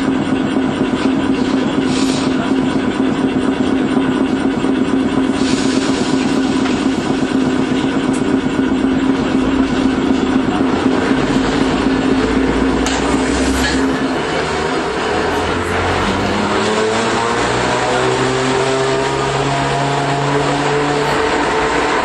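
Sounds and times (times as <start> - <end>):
streetcar motor hum: 0.0 - 22.0
wheels rumbling on rail: 0.0 - 22.0.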